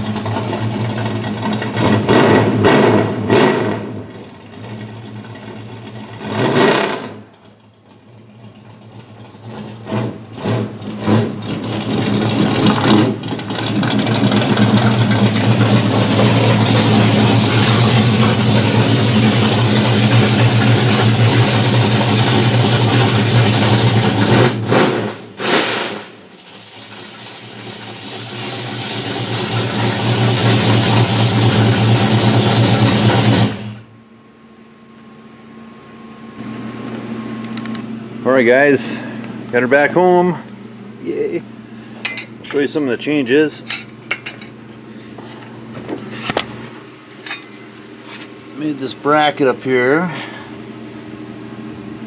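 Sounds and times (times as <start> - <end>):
engine revving blips: 0.0 - 7.4
car engine droning: 0.0 - 34.1.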